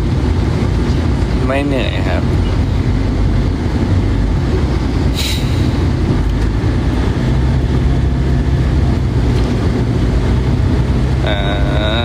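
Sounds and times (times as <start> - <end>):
vehicle rumbling: 0.0 - 12.0
short hiss: 5.2 - 5.8.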